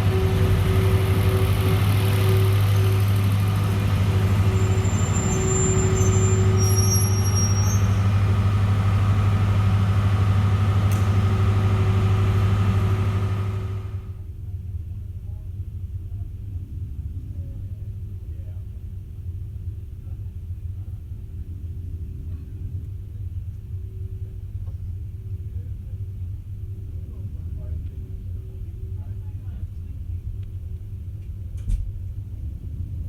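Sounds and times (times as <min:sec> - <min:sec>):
diesel locomotive idling: 0:00.0 - 0:14.3.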